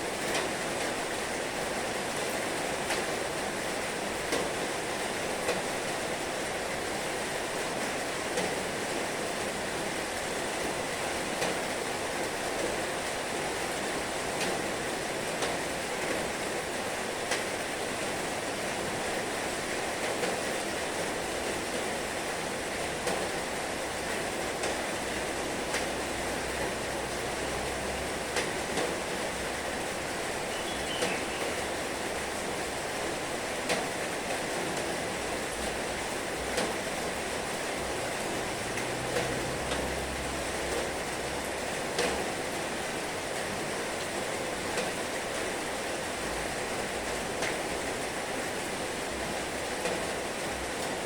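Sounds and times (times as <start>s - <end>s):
heavy rain hissing: 0.0s - 51.0s
sharp taps of raindrops: 0.2s - 0.6s, 4.3s - 4.6s, 5.4s - 5.7s, 7.8s - 8.6s, 11.4s - 11.7s, 14.3s - 14.7s, 15.3s - 16.2s, 17.3s - 17.6s, 20.0s - 20.5s, 23.0s - 23.5s, 24.1s - 25.0s, 25.6s - 26.0s, 28.3s - 29.2s, 30.5s - 31.6s, 33.6s - 35.8s, 36.4s - 37.6s, 38.7s - 40.0s, 41.9s - 42.4s, 44.0s - 45.4s, 47.1s - 47.8s, 49.8s - 50.2s.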